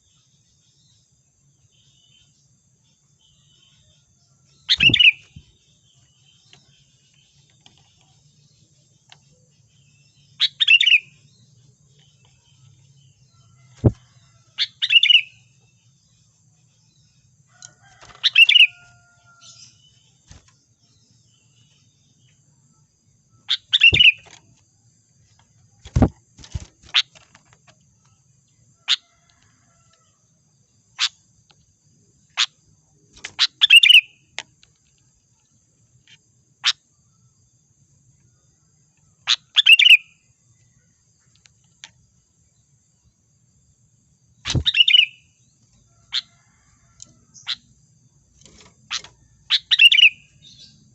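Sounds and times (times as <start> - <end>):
bird chirping calls: 3.2 - 16.0, 17.8 - 22.4, 23.3 - 24.6, 25.4 - 28.1, 32.3 - 34.4, 39.1 - 40.2, 44.4 - 45.4, 48.5 - 50.9.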